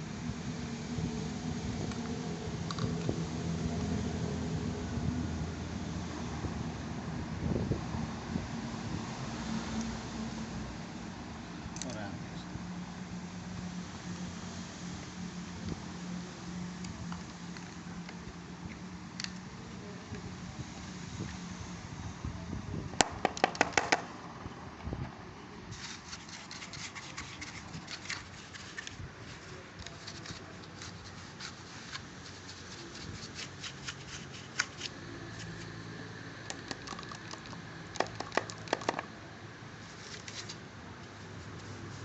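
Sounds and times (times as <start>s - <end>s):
scratching: 25.7s - 35.7s.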